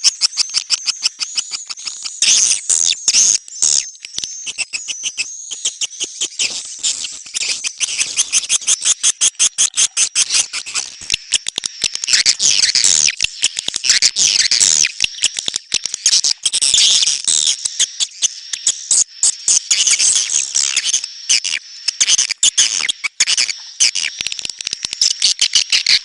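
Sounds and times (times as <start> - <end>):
shrill high twittering: 0.0 - 11.3, 16.0 - 24.2.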